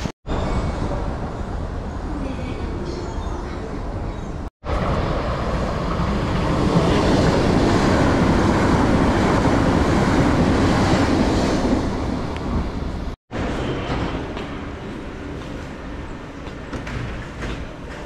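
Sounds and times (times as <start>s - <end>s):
train wheels rumbling on rails: 4.3s - 18.0s.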